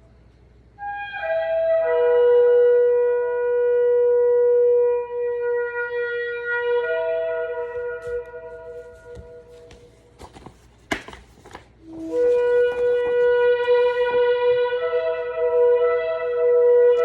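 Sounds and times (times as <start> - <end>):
ram's horn blasts: 4.8 - 10.0, 11.8 - 17.0.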